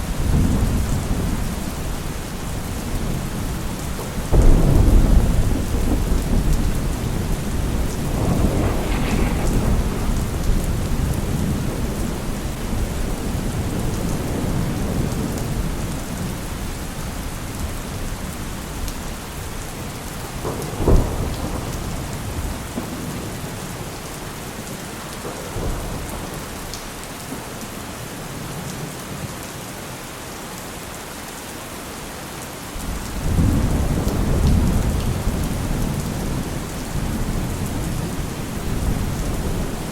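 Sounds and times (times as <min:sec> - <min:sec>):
heavy rain: 0:00.0 - 0:39.9
low thunder rumble: 0:00.1 - 0:16.6
sharp thunderclap: 0:04.3 - 0:15.1, 0:20.3 - 0:23.3.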